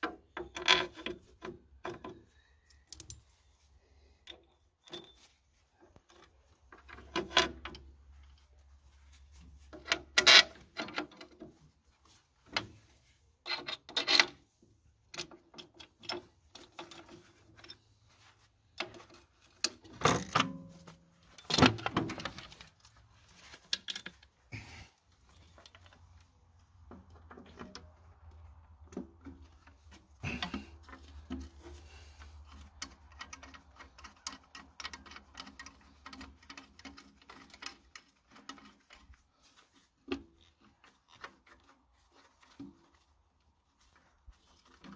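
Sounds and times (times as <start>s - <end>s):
metal parts clanking and scraping: 0.4s - 3.4s, 4.2s - 5.4s, 6.0s - 8.5s, 9.3s - 11.5s, 12.4s - 14.5s, 15.1s - 24.4s, 28.8s - 41.8s.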